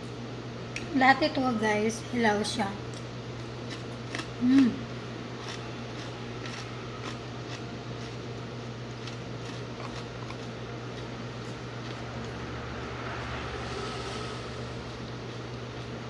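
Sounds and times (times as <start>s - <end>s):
steady low hum: 0.0s - 16.0s
chewing: 3.4s - 4.8s, 5.4s - 8.3s, 8.9s - 12.3s.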